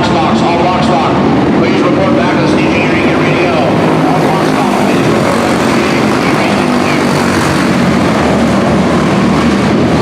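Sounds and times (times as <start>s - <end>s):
small race car engines droning: 0.0s - 10.0s.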